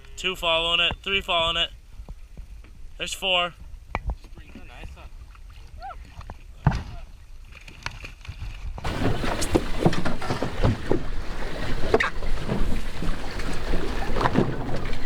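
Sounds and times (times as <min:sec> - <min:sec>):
knocks and splashes: 0:06.1 - 0:15.0
water noise: 0:08.8 - 0:15.0
wind buffeting microphone: 0:08.8 - 0:15.0.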